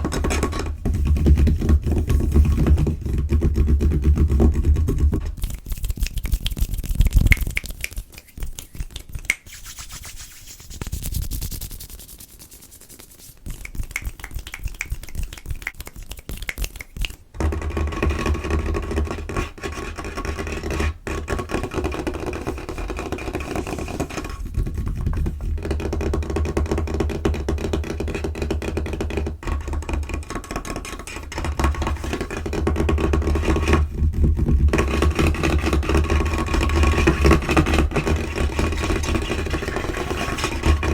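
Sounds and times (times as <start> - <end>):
fingernails tapping and scratching table: 0.0 - 9.2, 17.4 - 40.9.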